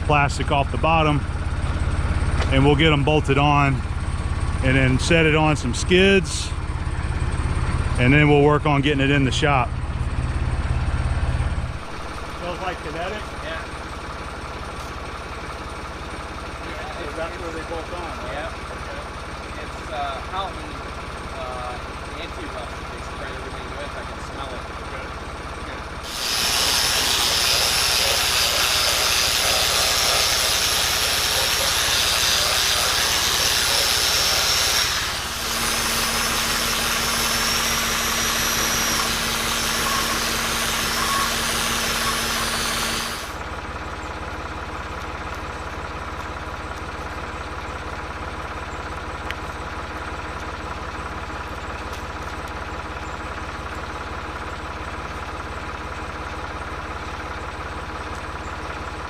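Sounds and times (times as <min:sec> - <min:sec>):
engine idling: 0:00.0 - 0:59.0
loud steady hiss: 0:26.0 - 0:43.4.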